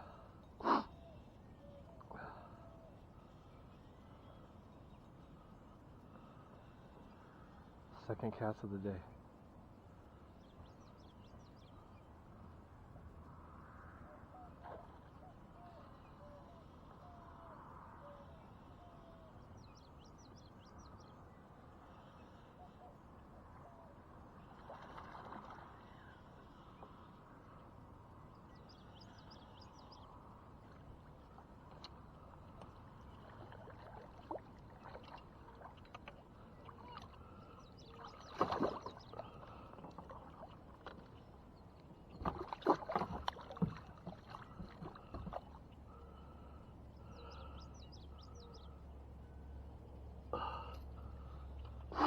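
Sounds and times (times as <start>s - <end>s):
faint bird chirps: 0.0s - 9.2s, 14.0s - 24.6s, 25.8s - 51.9s
water splashing against kayak: 30.7s - 41.3s, 42.0s - 46.0s.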